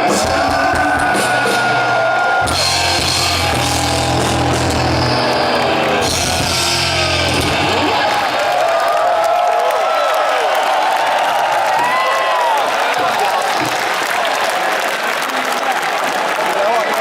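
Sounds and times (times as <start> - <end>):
distorted electric guitar: 0.0 - 8.6
drums and crashing cymbals: 0.0 - 8.7.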